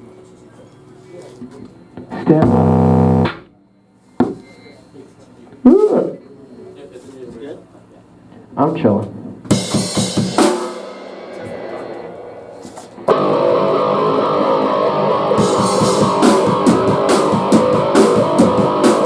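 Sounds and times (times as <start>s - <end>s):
distorted electric guitars: 2.1s - 3.5s, 9.5s - 19.0s
drum hits: 9.5s - 19.0s.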